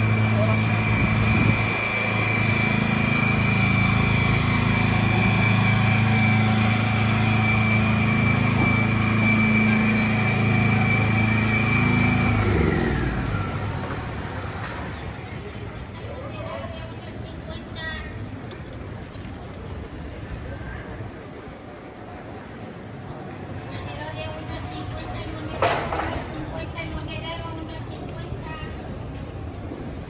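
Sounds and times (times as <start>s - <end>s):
vehicle engine humming: 0.0s - 15.9s.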